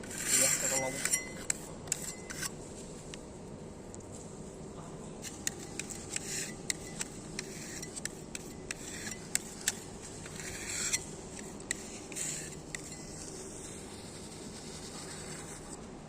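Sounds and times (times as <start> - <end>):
hand tools scraping concrete: 0.0 - 2.6, 5.2 - 13.5.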